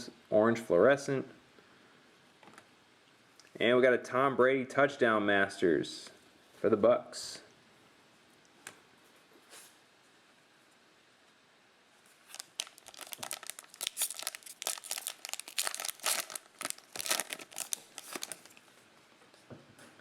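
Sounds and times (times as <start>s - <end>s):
plastic wrapper tearing and crinkling: 12.1s - 18.7s.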